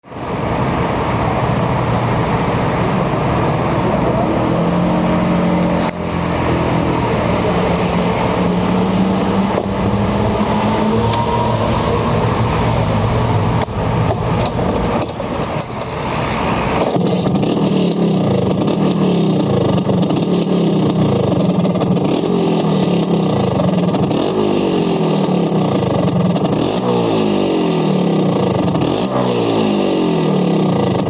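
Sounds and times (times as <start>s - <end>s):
scooter engine running: 0.0s - 31.0s.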